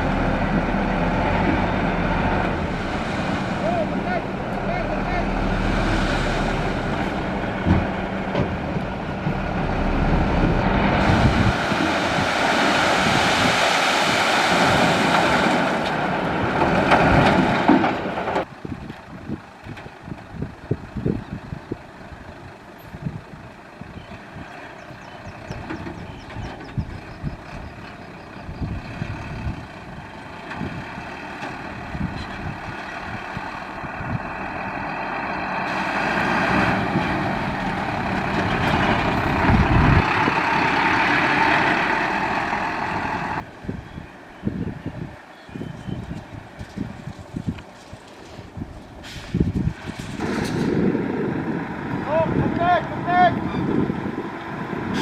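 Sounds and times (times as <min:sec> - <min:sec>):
dump truck engine working: 0:00.0 - 0:55.0
loud rushing noise: 0:02.0 - 0:17.5.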